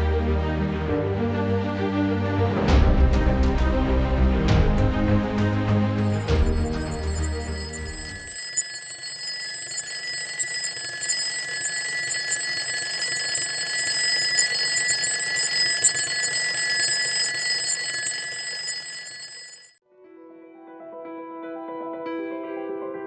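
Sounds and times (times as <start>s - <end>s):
alarm-like ringing over rattle: 6.0s - 19.8s.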